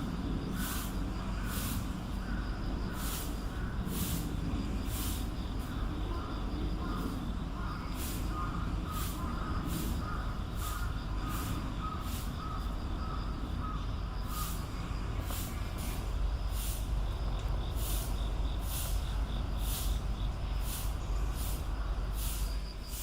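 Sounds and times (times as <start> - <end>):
steady low rumble: 0.0 - 22.6
otters chirping: 7.0 - 22.6.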